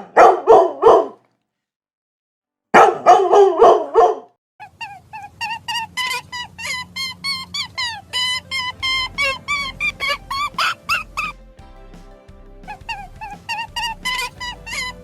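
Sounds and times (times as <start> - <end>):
dog barking: 0.0 - 1.2, 2.8 - 4.3.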